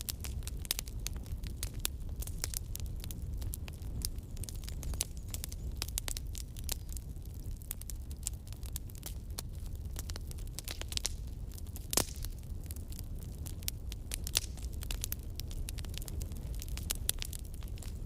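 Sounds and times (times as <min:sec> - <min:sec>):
campfire crackling and popping: 0:00.0 - 0:18.0
low rumble of flame: 0:00.0 - 0:18.0.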